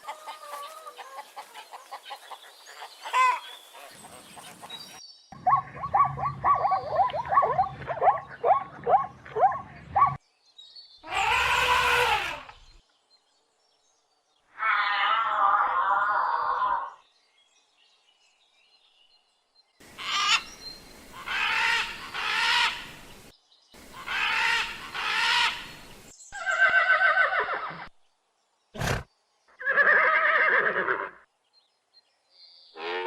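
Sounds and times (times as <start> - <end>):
animal calls: 5.4 - 10.2, 11.0 - 12.7, 19.9 - 23.0, 23.9 - 27.9, 28.8 - 31.1.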